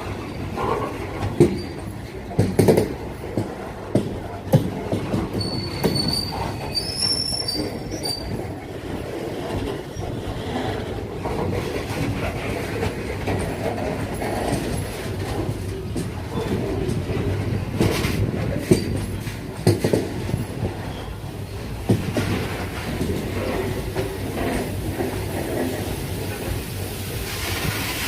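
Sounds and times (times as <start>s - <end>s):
train wheels knocking: 0.0s - 21.0s, 21.6s - 26.0s
train wagons rumbling past: 0.0s - 28.0s
high wheel squeal: 5.4s - 8.5s.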